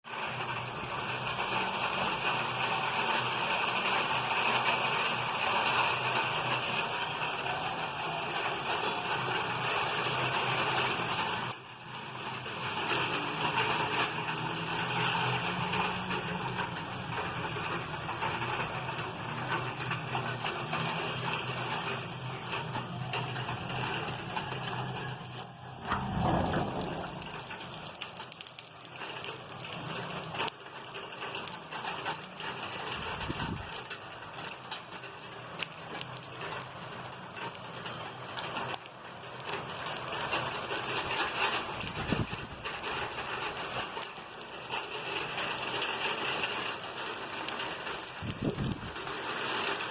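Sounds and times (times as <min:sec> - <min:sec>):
heavy rain hissing: 0:00.1 - 0:34.7.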